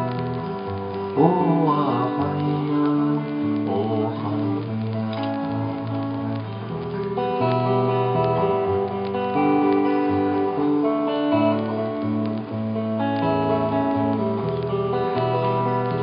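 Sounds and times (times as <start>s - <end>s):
acoustic guitar strumming: 0.0s - 16.0s
chanted vocal refrains: 1.1s - 5.0s.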